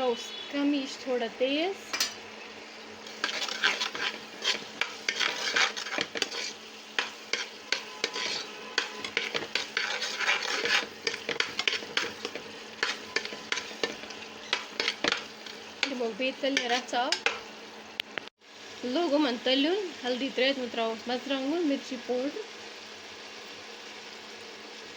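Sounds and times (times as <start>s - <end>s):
oil sizzling: 0.0s - 24.9s
metal spoon scraping a pot: 3.0s - 17.4s.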